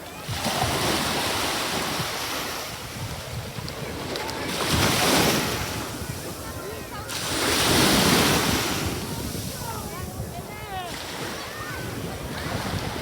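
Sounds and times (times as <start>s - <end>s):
wind buffeting microphone: 0.2s - 13.0s.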